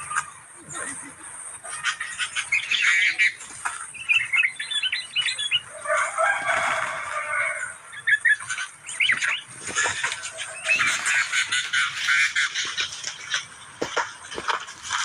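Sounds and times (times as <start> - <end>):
harsh scratchy bird chattering: 1.7 - 5.6, 7.9 - 15.0
sharp bird chirps: 2.2 - 5.8, 7.2 - 13.5.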